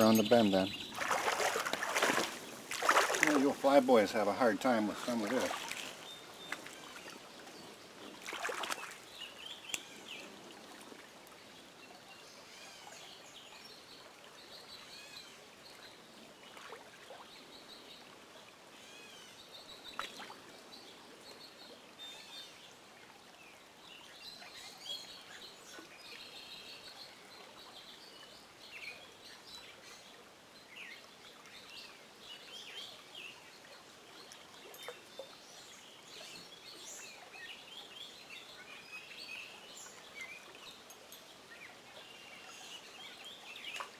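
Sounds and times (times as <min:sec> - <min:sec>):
stream water rushing: 0:00.0 - 0:17.0
songbirds singing and chirping: 0:00.0 - 0:43.9.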